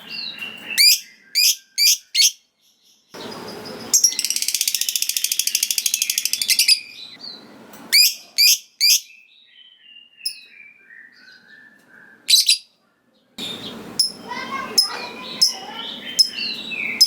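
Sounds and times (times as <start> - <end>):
lovebird chattering song: 0.1 - 9.2, 12.3 - 12.7, 13.4 - 17.0.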